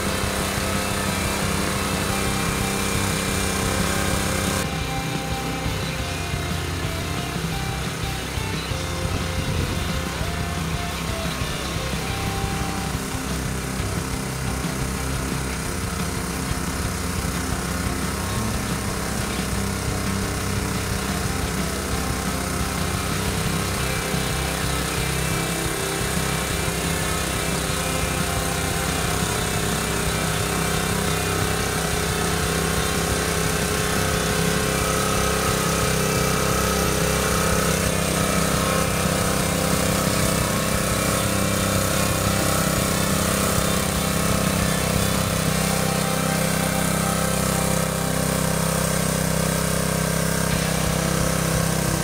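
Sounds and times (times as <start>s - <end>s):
cultivator engine droning: 0.0s - 52.0s.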